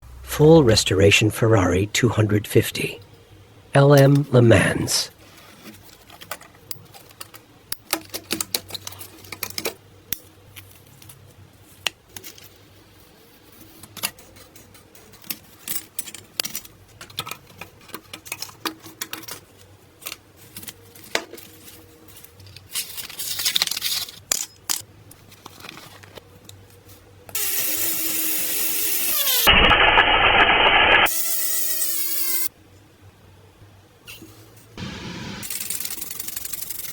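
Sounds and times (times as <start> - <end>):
loud steady rushing noise: 34.8 - 35.5.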